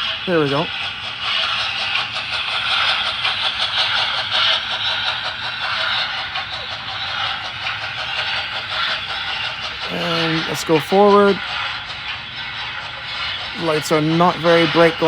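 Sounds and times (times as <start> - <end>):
model locomotives running: 0.0 - 15.0.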